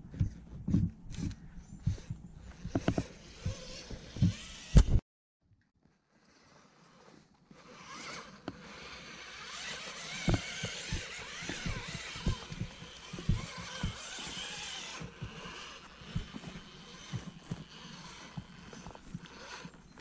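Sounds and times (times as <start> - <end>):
toy car electric motor whining: 2.6 - 5.0, 6.8 - 20.0
low thumps: 10.2 - 14.4.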